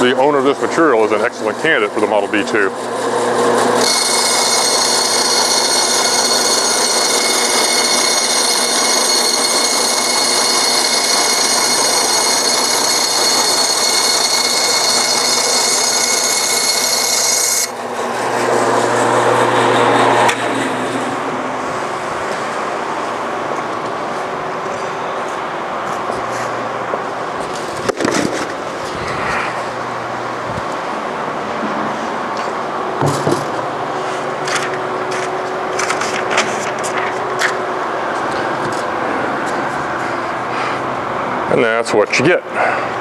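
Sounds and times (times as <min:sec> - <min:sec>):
bandsaw cutting foam: 0:01.8 - 0:21.0.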